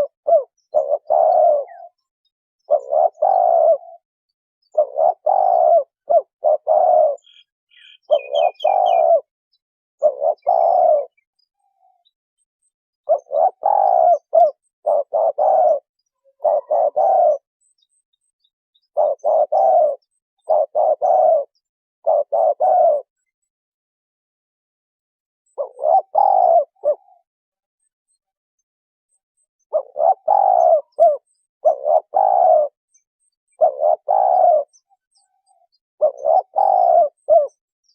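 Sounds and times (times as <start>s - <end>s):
small bird chirping: 0.0s - 4.0s, 4.6s - 23.6s, 25.5s - 37.9s
dove cooing: 0.0s - 4.1s, 4.7s - 9.3s, 10.0s - 12.1s, 13.0s - 17.5s, 18.9s - 23.4s, 25.5s - 27.3s, 29.6s - 32.8s, 33.5s - 37.9s.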